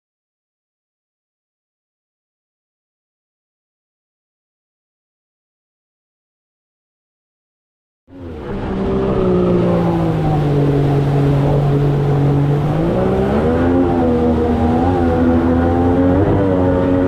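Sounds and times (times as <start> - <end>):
boat outboard engine running: 8.2 - 17.0.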